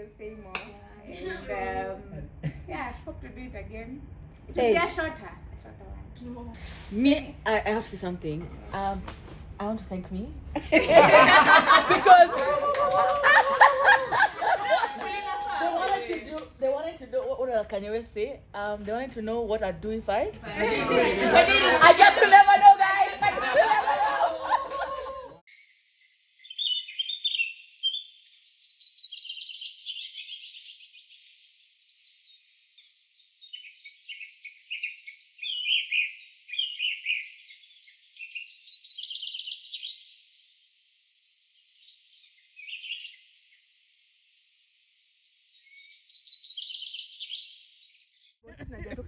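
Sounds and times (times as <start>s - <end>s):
birds chirping and trilling: 25.5s - 40.9s, 41.5s - 48.4s.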